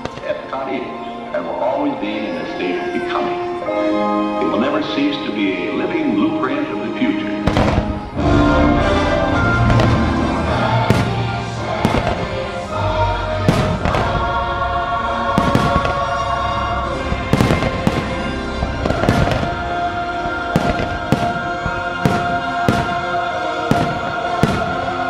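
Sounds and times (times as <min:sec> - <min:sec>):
orchestral music with choir: 0:00.0 - 0:25.0
fireworks bangs: 0:07.4 - 0:25.0.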